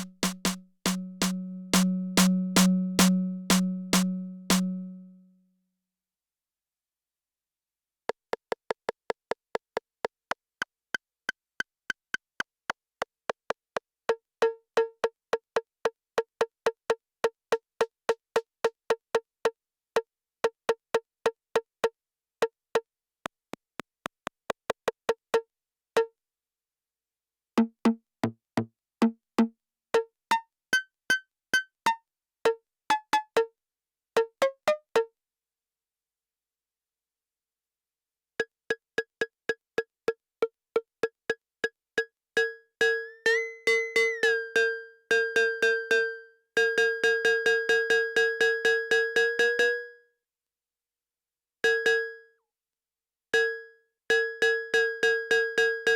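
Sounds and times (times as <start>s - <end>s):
dry drum machine rimshots: 0.0s - 4.7s.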